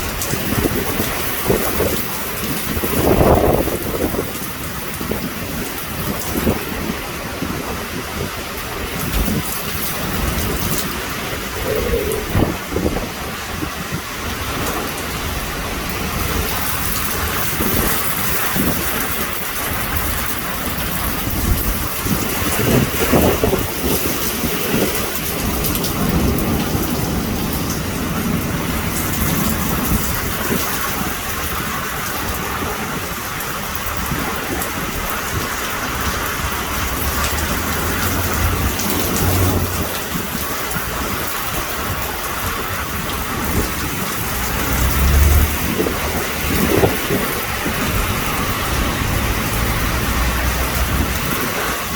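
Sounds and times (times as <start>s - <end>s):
heavy rain pouring: 0.0s - 51.9s
thunder rumbling: 8.8s - 51.9s.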